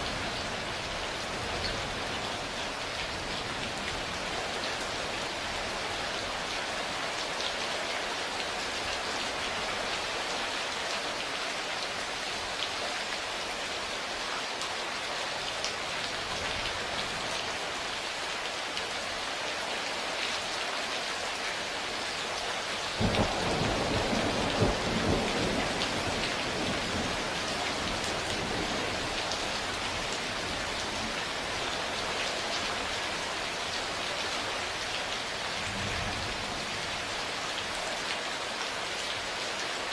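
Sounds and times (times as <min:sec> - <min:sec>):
heavy rain falling: 0:00.0 - 0:39.9
thunder clap rumbling: 0:23.0 - 0:27.1.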